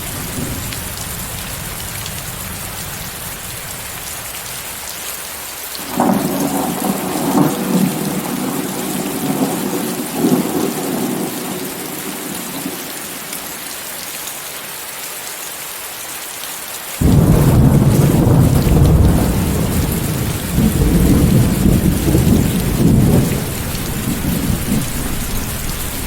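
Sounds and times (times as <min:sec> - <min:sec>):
loud thunderclap: 0:00.0 - 0:01.5, 0:05.8 - 0:11.6, 0:17.0 - 0:26.0
rolling thunder: 0:00.0 - 0:03.6, 0:05.8 - 0:12.8, 0:17.0 - 0:26.0
steady rain hissing: 0:00.0 - 0:26.0.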